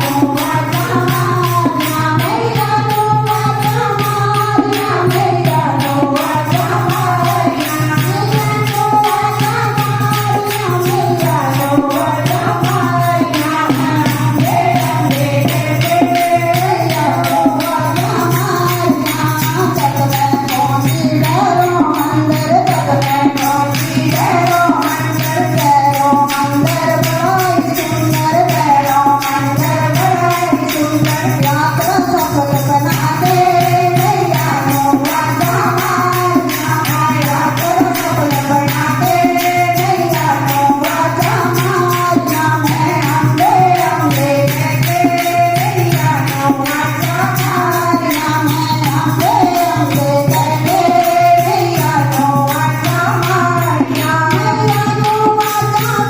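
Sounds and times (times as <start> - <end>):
fast percussion rhythm: 0.0 - 56.0
voices singing: 0.0 - 56.0.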